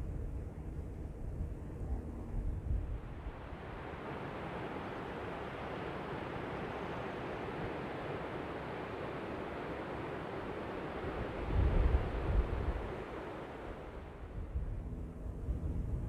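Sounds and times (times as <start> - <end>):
wind on microphone: 0.0 - 3.4, 11.2 - 13.1, 13.9 - 16.0.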